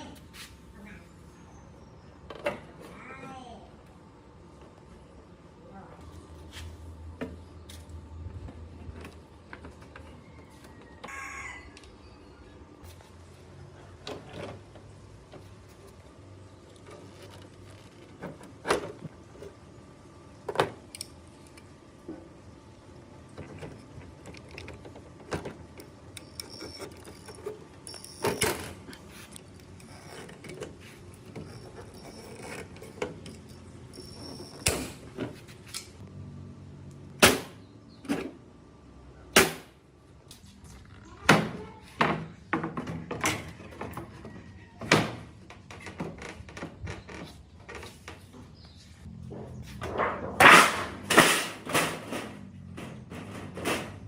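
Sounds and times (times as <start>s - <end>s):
knocks and clunks on parts: 23.3s - 29.0s, 41.2s - 54.0s.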